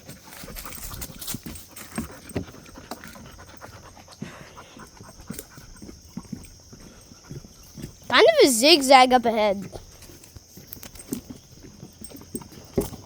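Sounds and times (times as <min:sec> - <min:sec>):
dog panting: 0:00.2 - 0:10.0
footsteps scuffing on trail: 0:09.6 - 0:13.0.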